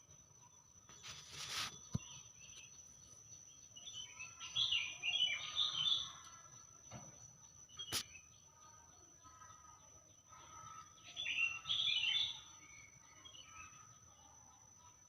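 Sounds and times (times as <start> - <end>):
birds chirping and calling: 0.0 - 15.0.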